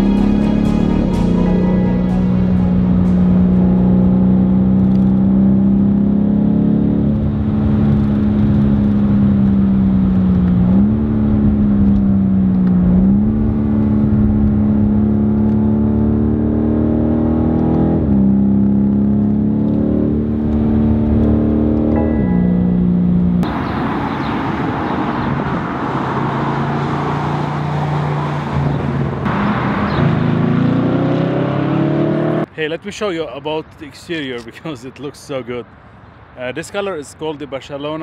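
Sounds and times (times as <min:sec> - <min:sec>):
gear change pitch jumps: 0:00.0 - 0:06.3, 0:19.6 - 0:24.3.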